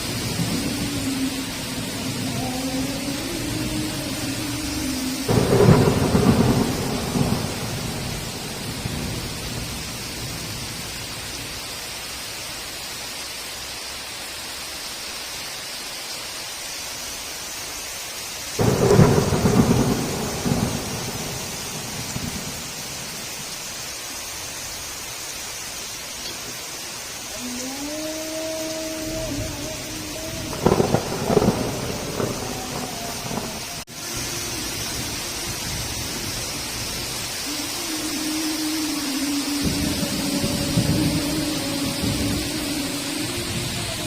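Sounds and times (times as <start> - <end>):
thunder rumbling: 0.0 - 11.6, 18.6 - 23.8, 27.4 - 44.0
heavy rain hissing: 0.0 - 44.0.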